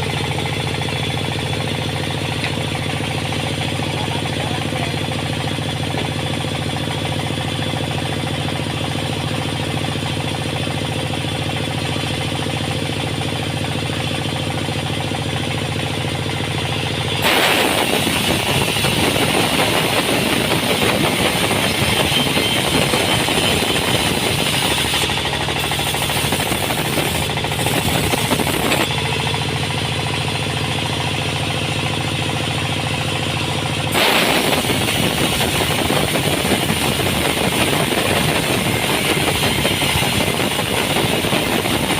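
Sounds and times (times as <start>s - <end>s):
sawmill engine running: 0.0s - 41.9s
saw cutting through wood: 17.0s - 29.4s, 33.9s - 41.9s.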